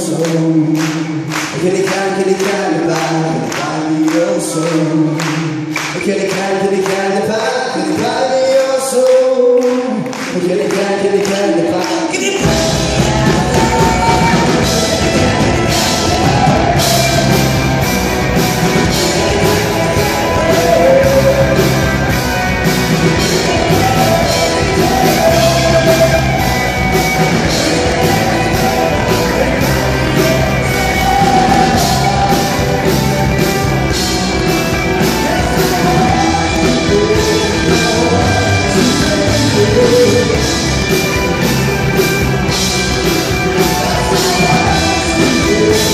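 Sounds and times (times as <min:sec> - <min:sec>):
rock song with singing and band: 0:00.0 - 0:45.9.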